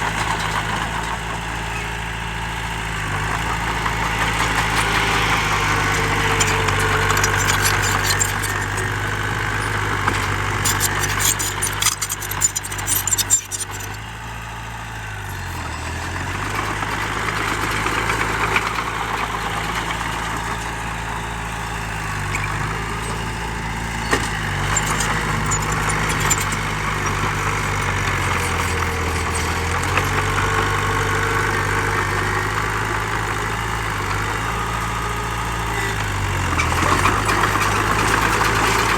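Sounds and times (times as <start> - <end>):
heavy diesel engine running: 0.0 - 38.9
rattling and clanking: 3.2 - 14.0, 15.5 - 31.8.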